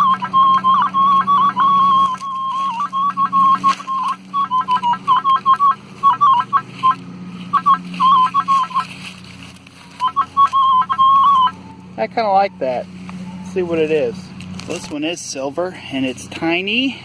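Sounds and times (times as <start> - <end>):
metal detector warbling beeps: 0.0 - 8.9, 9.8 - 14.0
lawnmower engine droning: 0.0 - 17.0.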